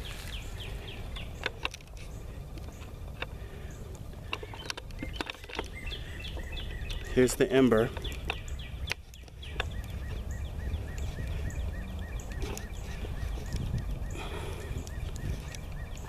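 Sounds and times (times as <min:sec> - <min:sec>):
sharp clicks: 0:01.1 - 0:14.0
wind rumble on microphone: 0:07.8 - 0:16.0.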